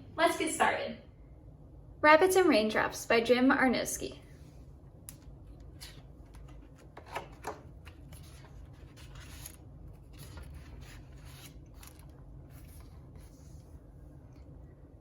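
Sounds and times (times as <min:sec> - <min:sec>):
faint low hum: 0:00.0 - 0:15.0
book pages rustling: 0:05.6 - 0:14.5.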